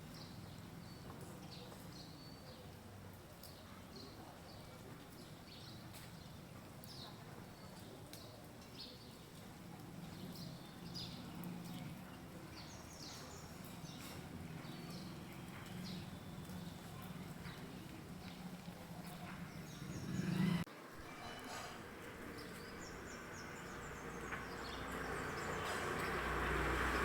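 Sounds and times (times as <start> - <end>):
faint low rumble: 14.3 - 20.7.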